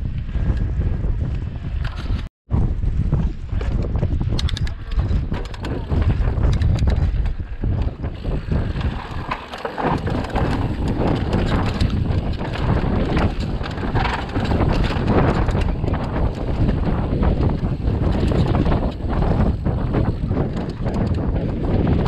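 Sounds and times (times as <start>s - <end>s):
wind rushing over microphone: 0.0s - 22.0s
mountain bike rattling and knocking: 3.5s - 22.0s.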